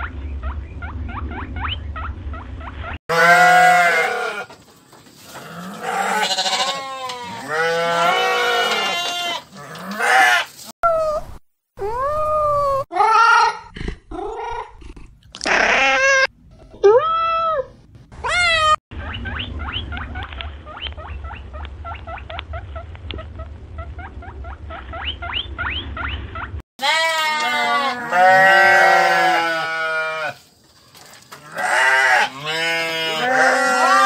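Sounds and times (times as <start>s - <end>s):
low rumble: 0.0s - 3.0s, 16.3s - 26.6s
sheep bleating: 3.1s - 4.5s, 5.4s - 10.5s, 26.8s - 30.4s, 31.4s - 34.0s.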